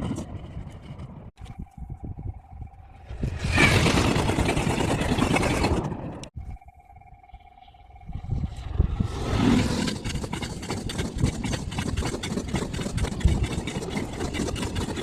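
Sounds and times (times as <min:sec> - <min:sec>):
wheels clattering: 0:03.4 - 0:06.3.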